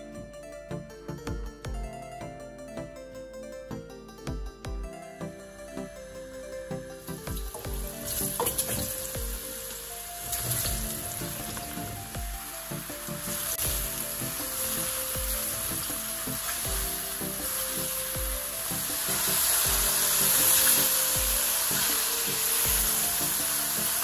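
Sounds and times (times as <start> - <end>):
soft background music: 0.0 - 24.0
mushrooms sizzling in oil: 7.5 - 24.0.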